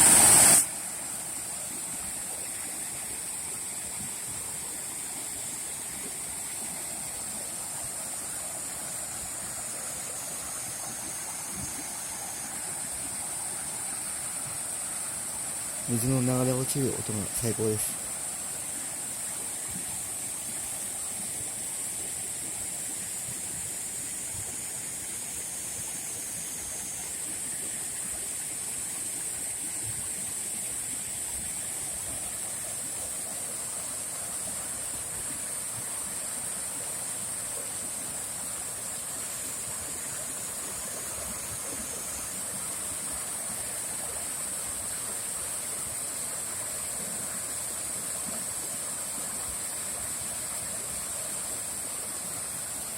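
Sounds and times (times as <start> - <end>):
waterfall rushing: 0.0 - 3.4, 6.6 - 20.9.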